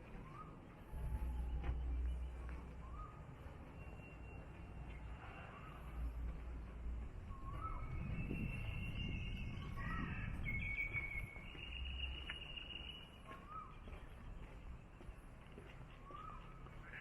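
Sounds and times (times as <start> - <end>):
bird whistled notes: 7.4 - 13.8
bird chirps: 7.4 - 14.7.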